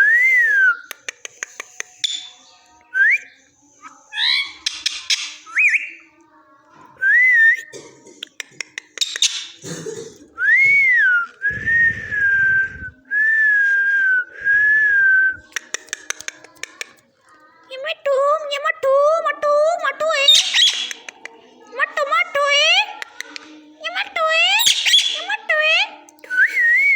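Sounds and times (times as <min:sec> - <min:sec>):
parrot clicks: 0:08.2 - 0:09.4, 0:15.5 - 0:17.1.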